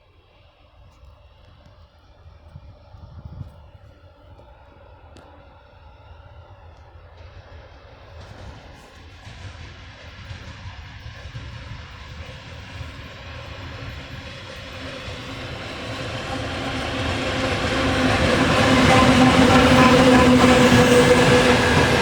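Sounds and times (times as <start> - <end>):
locomotive diesel engine drone: 12.0 - 22.0.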